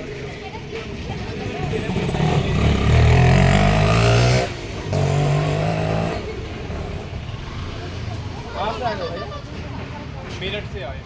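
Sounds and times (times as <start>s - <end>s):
vehicle engine running loudly: 0.9s - 8.5s.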